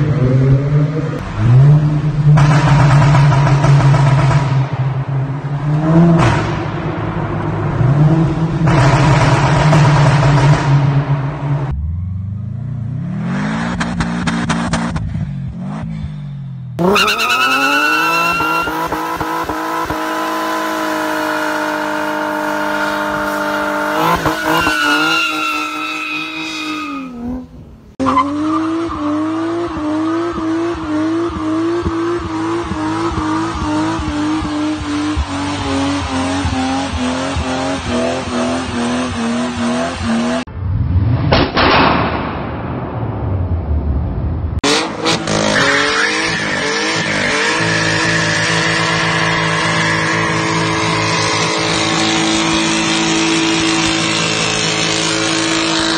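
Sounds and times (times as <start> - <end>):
car engine revving: 0.0 - 16.2, 16.8 - 55.9
engine bouncing on rev limiter: 5.9 - 11.9.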